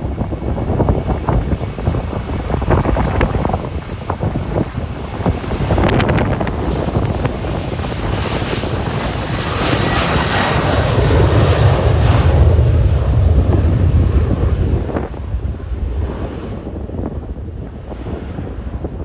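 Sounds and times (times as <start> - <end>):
jet airliner engine rumble: 0.0 - 19.0
wind buffeting microphone: 0.0 - 19.0.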